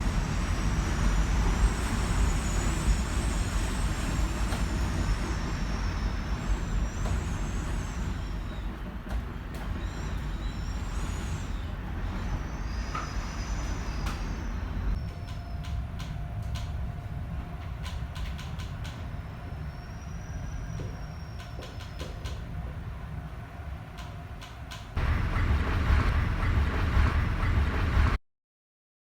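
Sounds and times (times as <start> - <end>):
wind whistling: 0.0 - 15.0
wind rumbling against building: 24.9 - 28.2.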